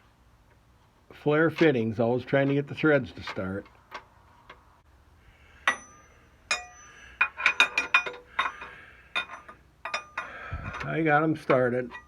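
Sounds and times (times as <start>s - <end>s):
metallic clinks of tools: 5.7s - 10.9s.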